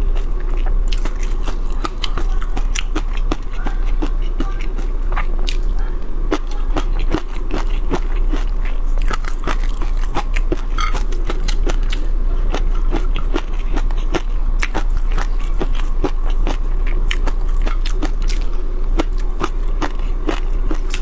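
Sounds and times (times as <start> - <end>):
chewing crispy shrimp: 0.0 - 21.0
chopsticks scraping plate: 9.1 - 11.8.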